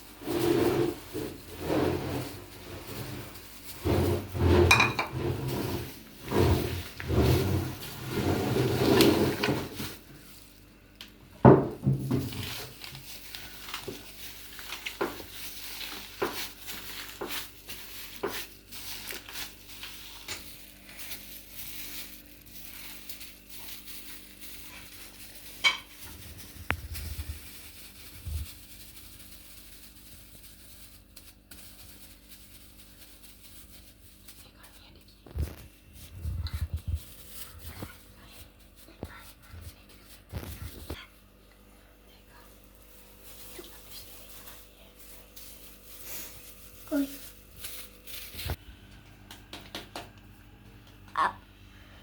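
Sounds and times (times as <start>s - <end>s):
utensils clinking against dishes: 4.2s - 6.0s, 25.5s - 26.2s.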